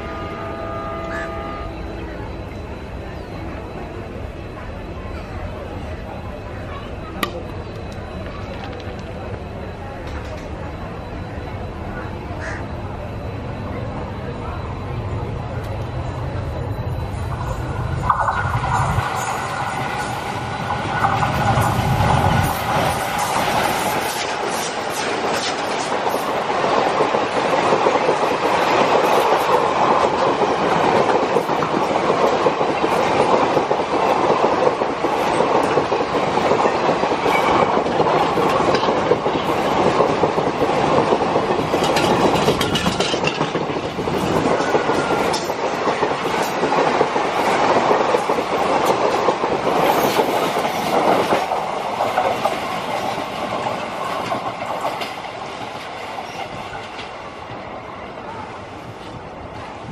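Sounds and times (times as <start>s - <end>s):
train coaches passing at speed: 0.0s - 59.9s
wheels clacking over rail joints: 18.9s - 57.2s.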